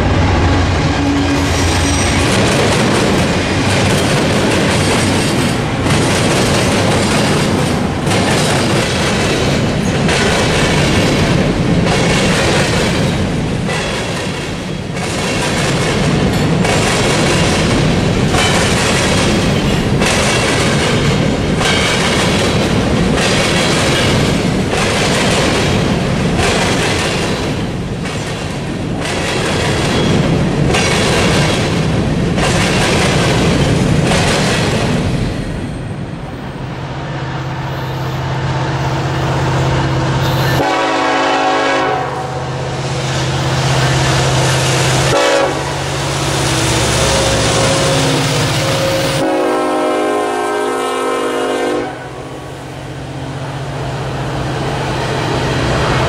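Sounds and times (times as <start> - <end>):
locomotive engine drone: 0.0 - 8.4, 35.7 - 51.2, 52.0 - 56.0
train horn chords: 40.5 - 42.8, 45.0 - 52.5.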